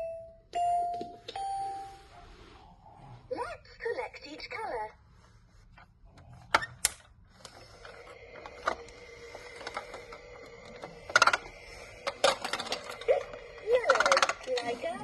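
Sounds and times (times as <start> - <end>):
toy vacuum whirring: 7.4 - 15.0.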